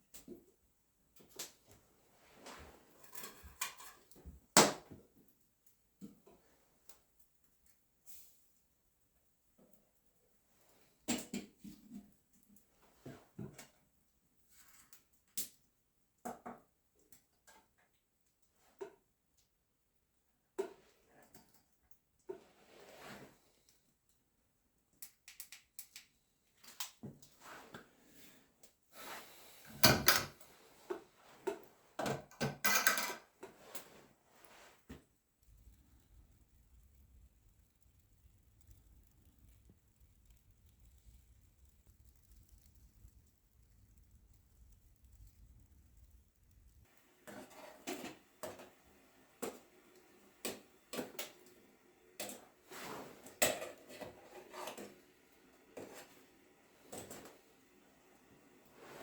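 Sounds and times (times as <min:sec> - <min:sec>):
objects knocking and clattering: 0:31.4 - 0:33.6.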